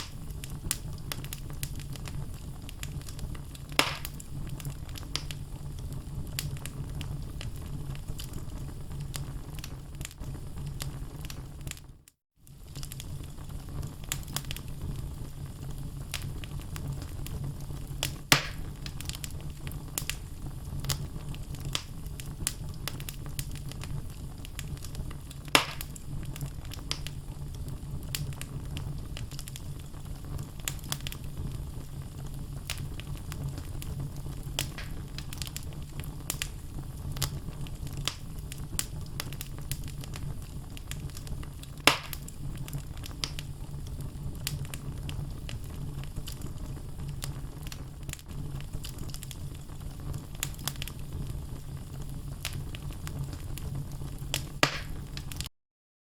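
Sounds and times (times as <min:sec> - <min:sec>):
logs crackling and snapping: 0:00.0 - 0:07.5, 0:12.5 - 0:14.8, 0:18.0 - 0:29.8, 0:30.4 - 0:31.4, 0:32.6 - 0:46.6, 0:47.2 - 0:51.2, 0:51.8 - 0:55.5
loud pops from fire: 0:00.0 - 0:11.8, 0:12.4 - 0:55.5
low rumble of flames: 0:00.0 - 0:55.5.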